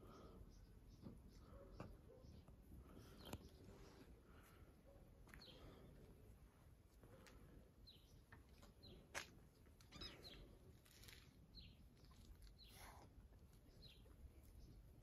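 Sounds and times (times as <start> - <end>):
faint bird chirps: 9.8 - 15.0.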